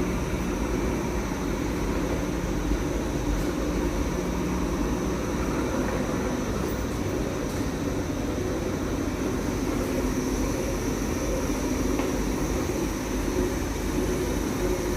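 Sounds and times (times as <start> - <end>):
tumble dryer running: 0.0 - 1.2.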